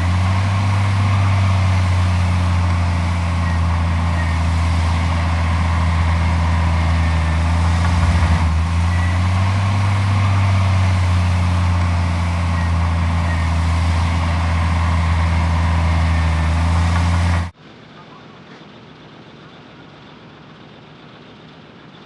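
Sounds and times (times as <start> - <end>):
heavy diesel engine running: 0.0 - 17.6.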